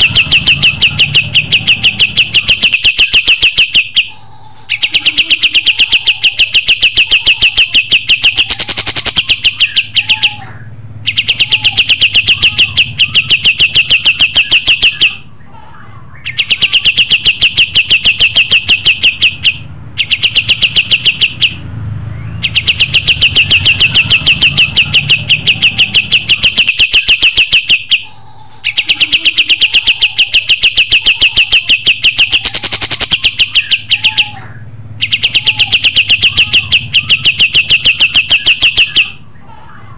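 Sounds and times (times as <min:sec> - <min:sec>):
songbird rapid trills: 0:00.0 - 0:10.4, 0:22.4 - 0:34.3.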